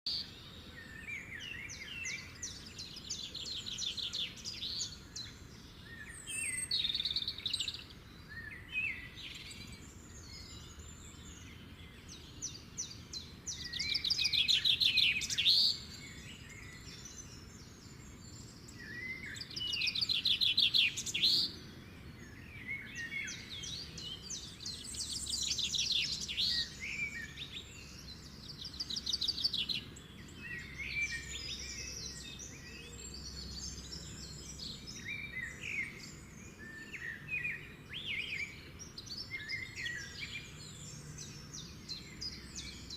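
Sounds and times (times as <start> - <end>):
small birds chirping and trilling: 0.0 - 42.9.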